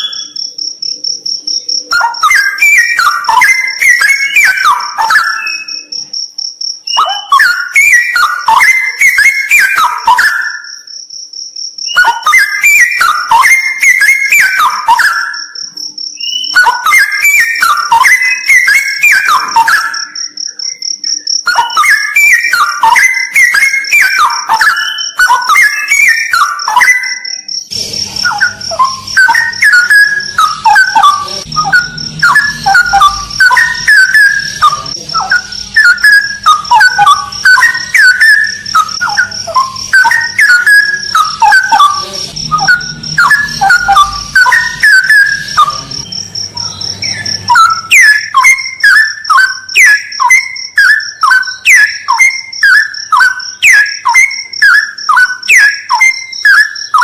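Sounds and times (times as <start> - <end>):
bird singing whistled phrases: 0.0 - 0.6, 1.4 - 6.1, 6.8 - 10.9, 11.8 - 57.0
pulsing insect-like buzz: 27.2 - 50.7.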